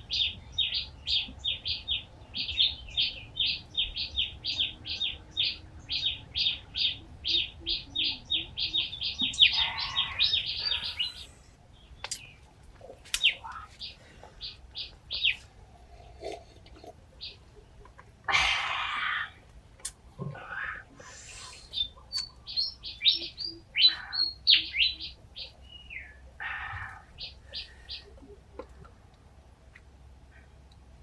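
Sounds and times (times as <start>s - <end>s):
small bird chirping: 0.0s - 15.6s, 20.4s - 28.8s
sharp clicks: 13.1s - 13.5s.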